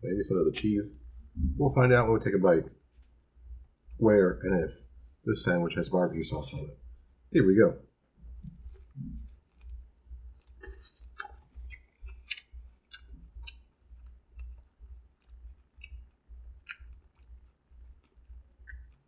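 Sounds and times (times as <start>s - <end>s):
person chewing food: 8.6s - 19.0s
wet mouth clicks: 8.8s - 19.0s.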